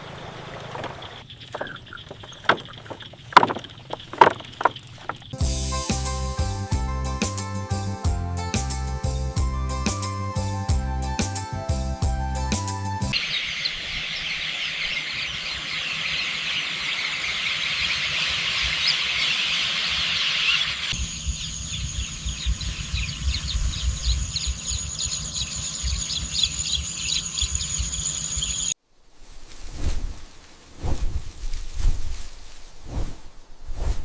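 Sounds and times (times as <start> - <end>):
birds chirping densely: 0.0 - 5.4, 13.1 - 28.8.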